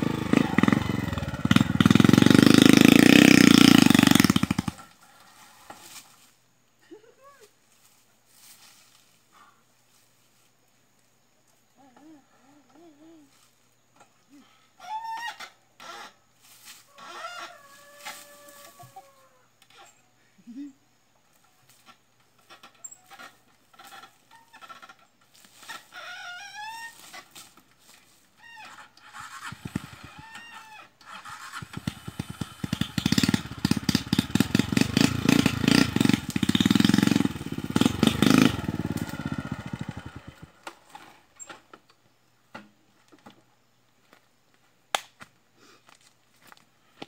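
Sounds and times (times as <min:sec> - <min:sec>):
motorcycle engine starting and revving: 0:00.0 - 0:05.0, 0:21.9 - 0:27.3, 0:28.4 - 0:41.5.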